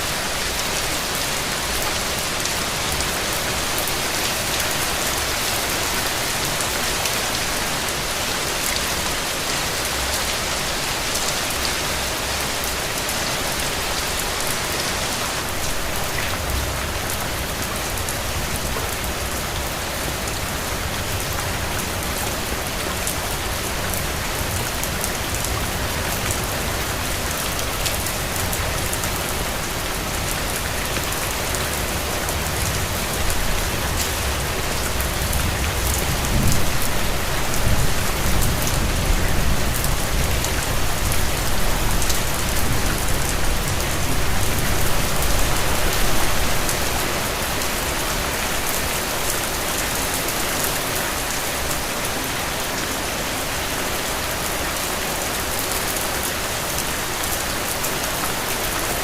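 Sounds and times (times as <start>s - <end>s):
rain on hard surfaces: 0.0s - 59.0s.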